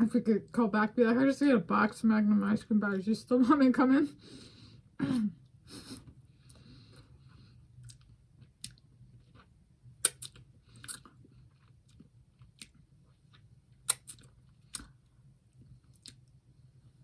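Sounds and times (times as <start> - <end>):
person biting and chewing: 7.8 - 14.9.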